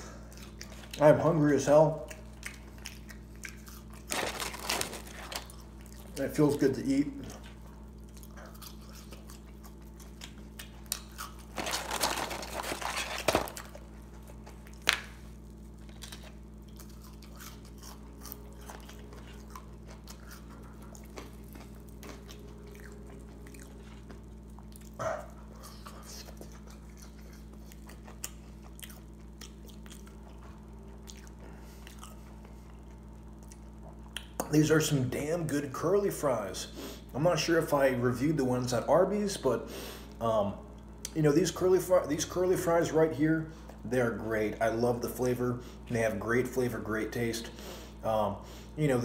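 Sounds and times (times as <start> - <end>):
low hum: 0.0 - 49.0
person crunching fries: 2.0 - 6.2, 7.2 - 34.3.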